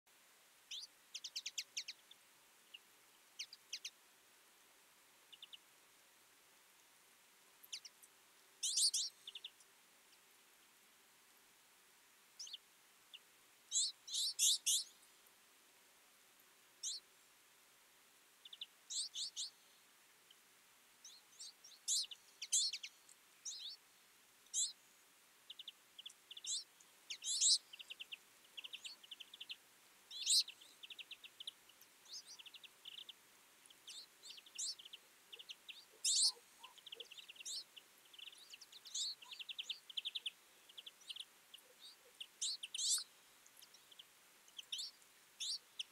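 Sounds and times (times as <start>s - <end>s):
flock of birds chirping and twittering: 0.7s - 4.0s, 5.2s - 5.7s, 7.6s - 10.3s, 12.4s - 15.2s, 16.8s - 17.1s, 18.4s - 20.4s, 21.0s - 23.8s, 24.4s - 24.8s, 25.4s - 45.9s.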